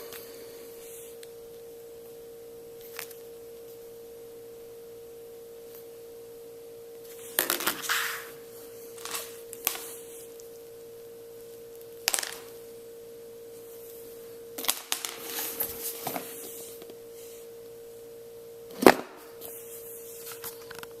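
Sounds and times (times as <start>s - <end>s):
steady hum-like tone: 0.0s - 21.0s.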